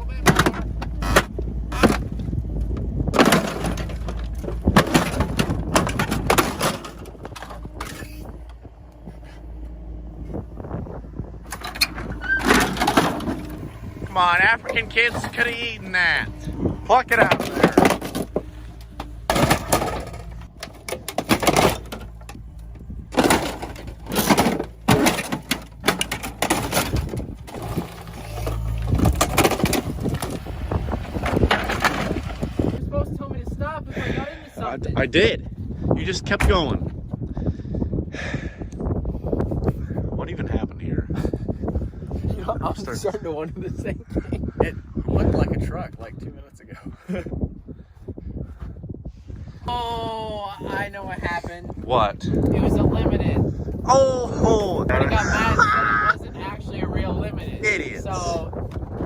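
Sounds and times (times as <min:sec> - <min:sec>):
excavator bucket crunching metal: 0:00.0 - 0:32.8
excavator engine running: 0:00.0 - 0:34.2, 0:49.7 - 0:59.0.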